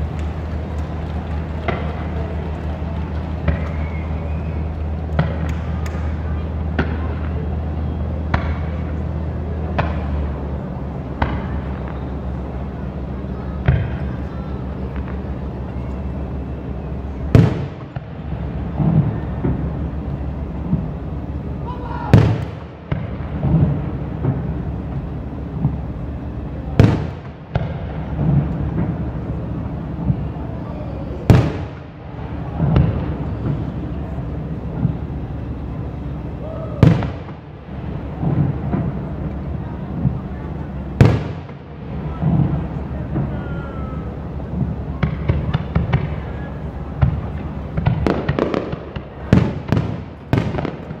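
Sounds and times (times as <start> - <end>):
fireworks bangs: 0.0 - 51.0
small fireworks cracks: 0.0 - 51.0
steady low rumble: 0.0 - 51.0.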